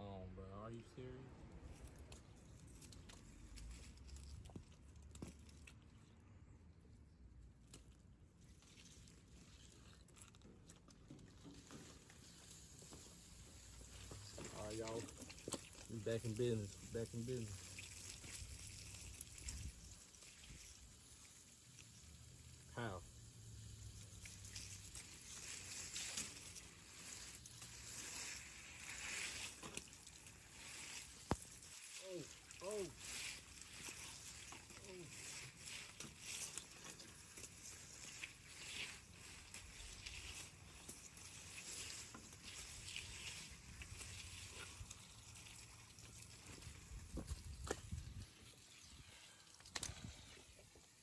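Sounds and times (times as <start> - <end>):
water spraying from a hose: 11.1 - 51.0.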